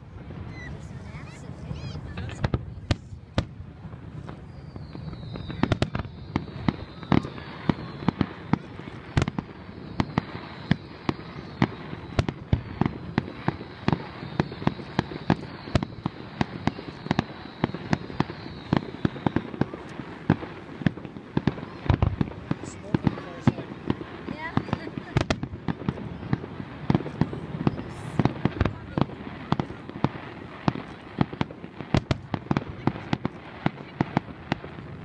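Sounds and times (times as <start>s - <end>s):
fireworks bursting with sharp bangs: 0.0s - 35.0s
faint high-pitched whistle: 4.2s - 20.0s.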